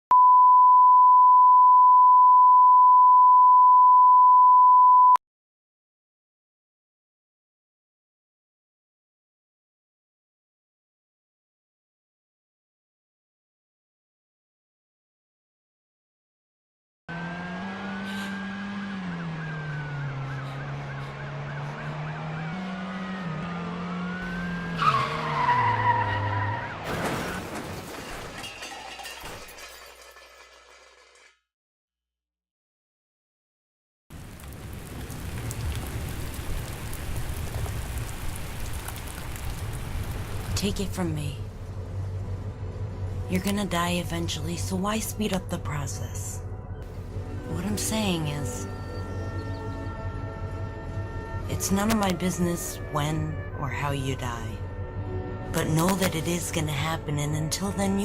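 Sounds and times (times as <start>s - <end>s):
sine test tone beep: 0.1s - 5.2s
car engine running: 17.1s - 25.7s, 46.5s - 48.2s
tire squeal: 17.5s - 27.6s
car crash: 24.4s - 31.3s
debris clattering: 26.8s - 31.4s.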